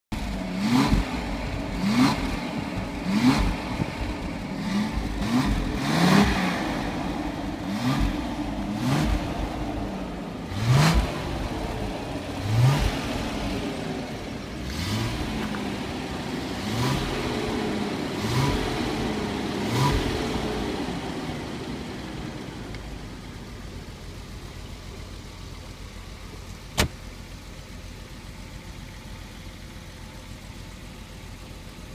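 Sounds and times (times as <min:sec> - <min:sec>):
engine revving: 0:00.1 - 0:24.4
engine idling: 0:00.1 - 0:31.9
sharp click: 0:26.7 - 0:27.0.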